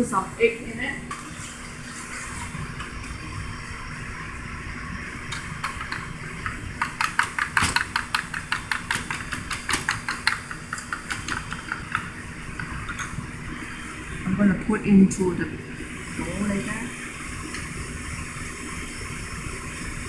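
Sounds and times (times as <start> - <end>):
utensil clicking against a bowl: 5.3 - 13.0.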